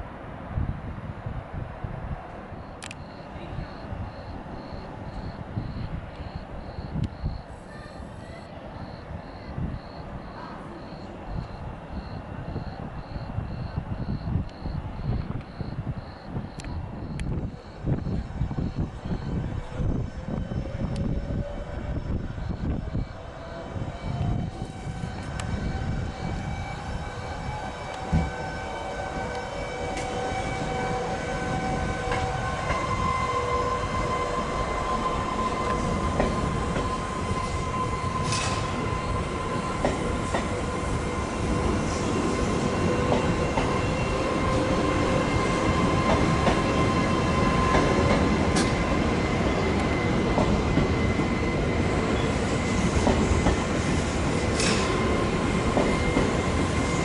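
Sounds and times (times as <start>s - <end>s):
train whine: 0.0s - 57.0s
wheels rumbling on rails: 0.0s - 57.0s.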